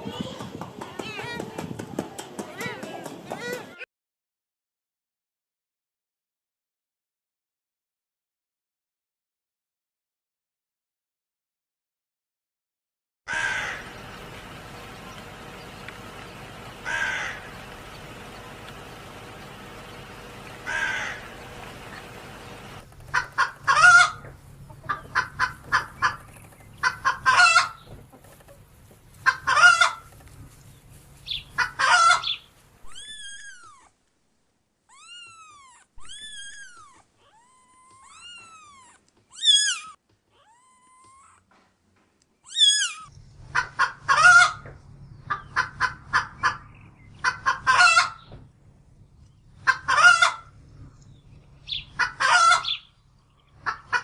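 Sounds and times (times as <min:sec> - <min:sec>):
chicken cackling: 0:13.3 - 0:30.6, 0:31.2 - 0:33.1, 0:42.6 - 0:48.3, 0:49.6 - 0:50.6, 0:51.6 - 0:52.9, 0:53.5 - 0:54.0
chicken calls rising and falling: 0:13.3 - 0:33.6, 0:42.5 - 0:48.4, 0:49.5 - 0:50.6, 0:51.6 - 0:54.0.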